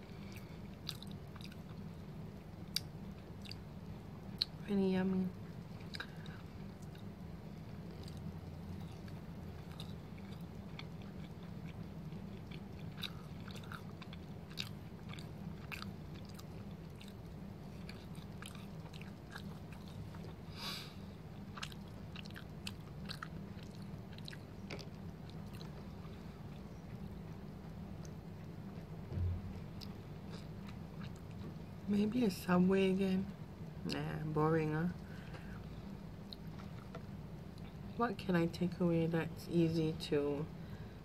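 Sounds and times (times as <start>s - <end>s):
steady low hum: 0.0s - 41.0s
person chewing close to microphone: 0.1s - 2.0s, 2.6s - 3.7s, 5.8s - 20.5s, 21.3s - 31.6s, 35.0s - 37.8s.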